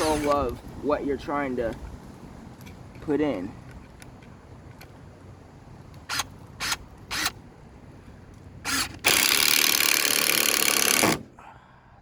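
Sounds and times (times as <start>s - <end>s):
impact driver driving screw: 8.7s - 11.3s.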